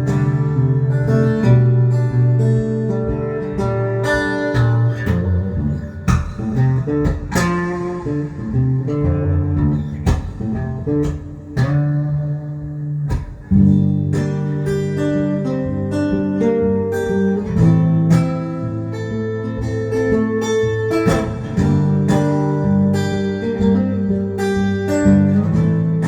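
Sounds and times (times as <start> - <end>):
acoustic guitar blues: 0.0 - 26.0.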